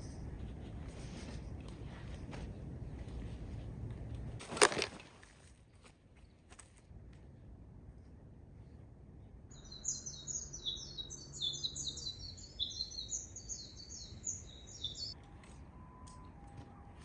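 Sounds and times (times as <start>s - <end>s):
small birds chirping: 9.5s - 15.2s.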